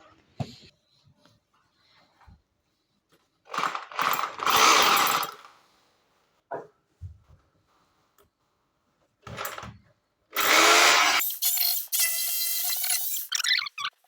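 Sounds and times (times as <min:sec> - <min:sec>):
rotary hammer drill drilling wall: 0:03.5 - 0:05.4, 0:10.3 - 0:13.4.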